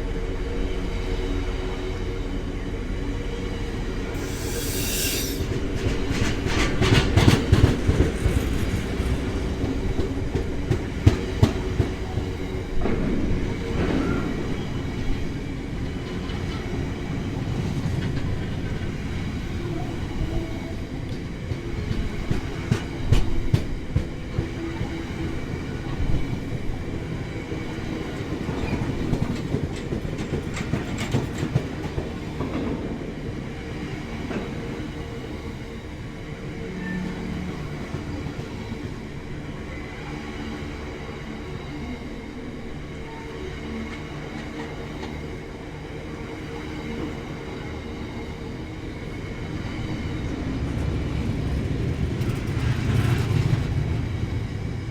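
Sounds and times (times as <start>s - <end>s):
train rumbling past: 0.0s - 54.9s
brief high hiss: 4.2s - 5.6s.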